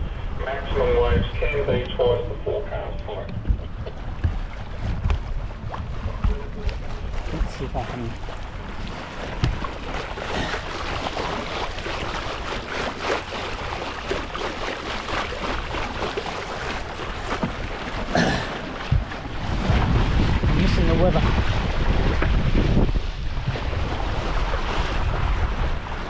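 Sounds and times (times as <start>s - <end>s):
water and air noise: 0.0s - 26.0s
water splashes: 0.0s - 26.0s
knocks on boat: 3.2s - 11.2s, 15.6s - 22.9s.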